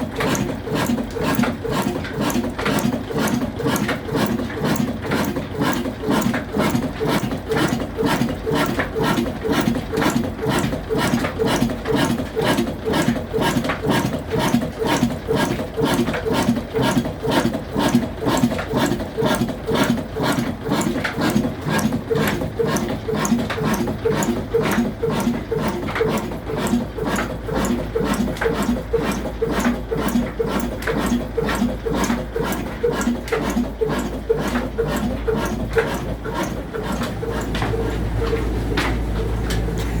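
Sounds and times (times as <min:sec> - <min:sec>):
mechanical clatter: 0:00.0 - 0:40.0
diesel engine running slowly: 0:36.7 - 0:40.0.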